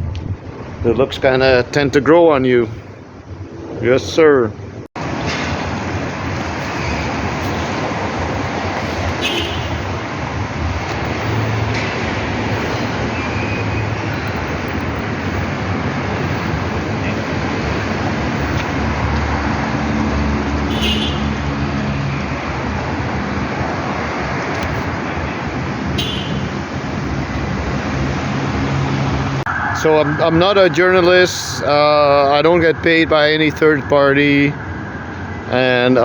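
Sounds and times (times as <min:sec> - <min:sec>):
road traffic noise: 0:00.0 - 0:36.0
vehicle engine hum: 0:04.6 - 0:36.0.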